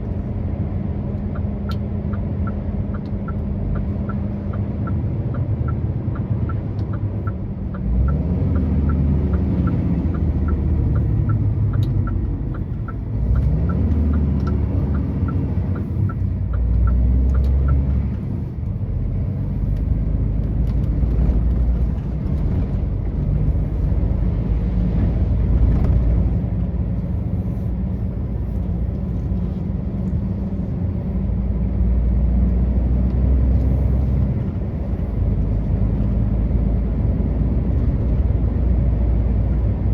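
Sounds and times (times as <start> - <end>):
truck engine running: 0.0 - 39.9
turn signal ticking: 0.0 - 39.9.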